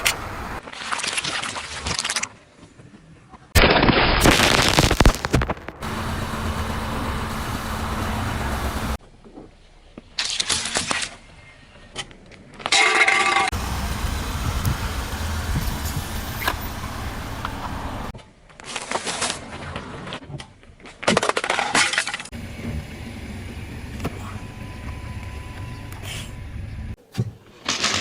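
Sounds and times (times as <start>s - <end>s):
low engine and tyre rumble: 0.0s - 0.6s, 5.7s - 10.2s, 13.5s - 18.2s, 22.3s - 27.0s
tyres crunching and cracking: 3.6s - 9.5s.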